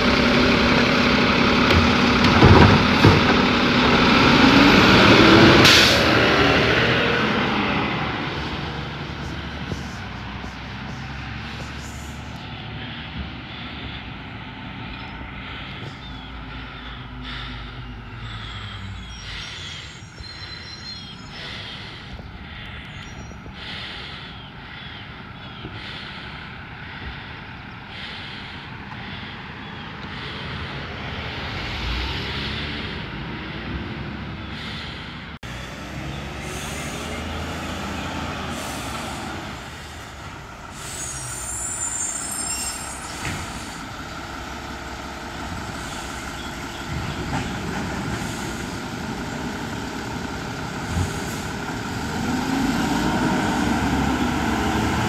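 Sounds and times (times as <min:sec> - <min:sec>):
garbage truck engine running: 0:00.0 - 0:24.9, 0:34.4 - 0:55.0
air brake hiss: 0:05.6 - 0:06.1, 0:40.7 - 0:43.9.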